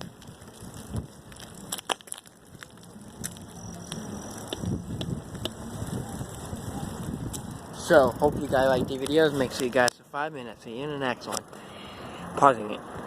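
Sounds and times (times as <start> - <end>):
bicycle crunching: 0.0 - 12.6.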